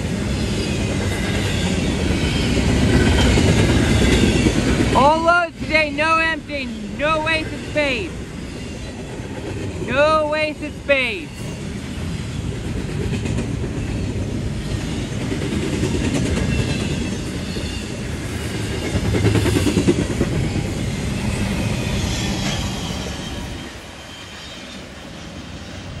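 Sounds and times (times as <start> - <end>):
train wheels rumbling and clacking: 0.0 - 10.4, 11.2 - 26.0
faint high wheel squeal: 22.0 - 25.7.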